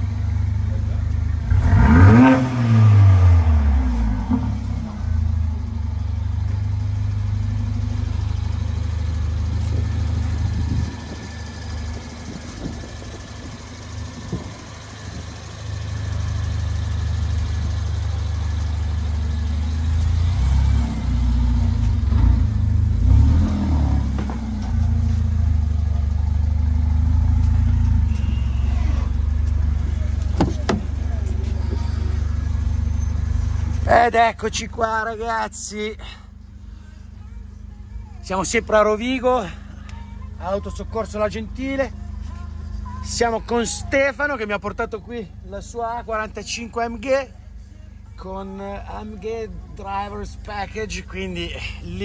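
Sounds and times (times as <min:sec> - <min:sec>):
car engine idling: 0:00.0 - 0:52.0.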